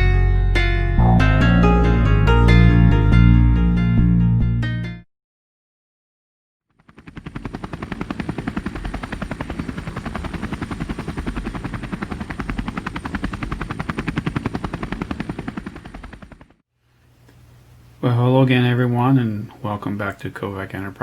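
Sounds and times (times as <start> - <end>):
high steady whine: 1.0 - 2.5
helicopter rotor blades beating: 6.7 - 16.6.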